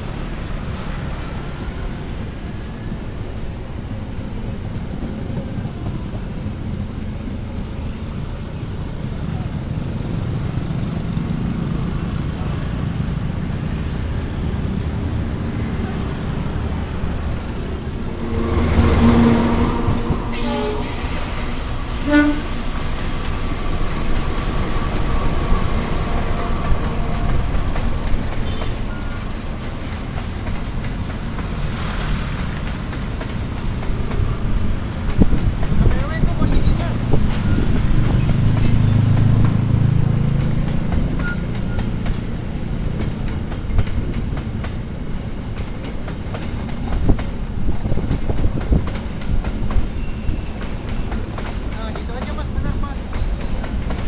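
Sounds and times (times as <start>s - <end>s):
train rumbling on tracks: 0.0s - 54.0s
locomotive horn blast: 18.0s - 29.2s.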